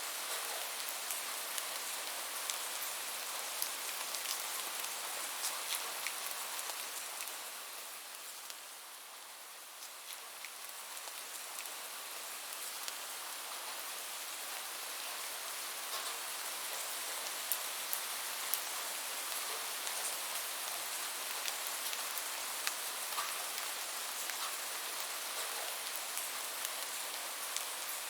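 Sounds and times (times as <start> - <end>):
steady rain: 0.0 - 28.0
raindrops ticking close by: 15.8 - 28.0.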